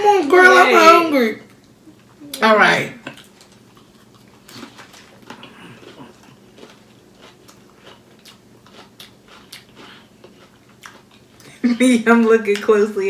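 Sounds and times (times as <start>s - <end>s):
person chewing crunchy food: 3.1s - 11.6s.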